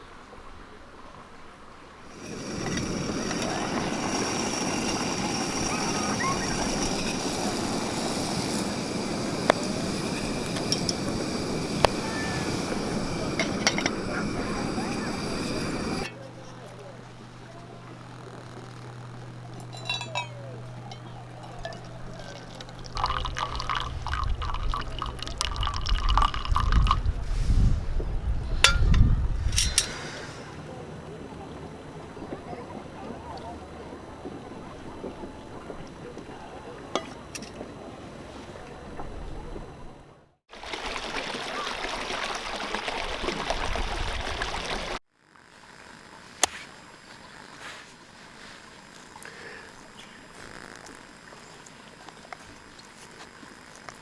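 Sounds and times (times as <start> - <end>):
running water: 0.0 - 27.6, 40.5 - 45.0
steady ringing tone: 2.1 - 24.2
liquid pouring into container: 21.6 - 27.1.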